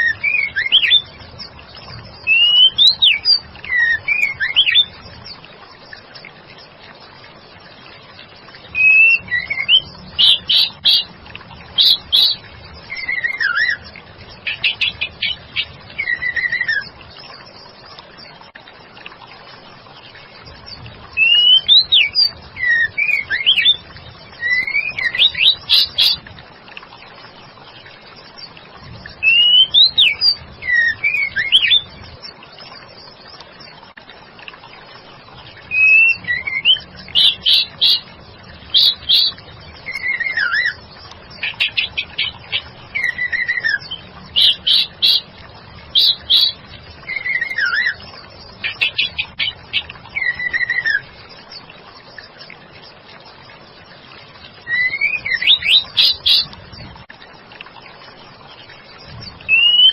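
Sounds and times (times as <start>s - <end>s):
bird singing whistled notes: 0.0s - 1.1s, 2.2s - 5.0s, 8.7s - 11.1s, 11.8s - 13.8s, 14.4s - 16.9s, 21.2s - 23.8s, 24.4s - 26.2s, 29.2s - 31.9s, 35.7s - 38.1s, 38.7s - 40.8s, 41.4s - 45.3s, 45.9s - 51.1s, 54.6s - 56.6s, 59.4s - 59.9s.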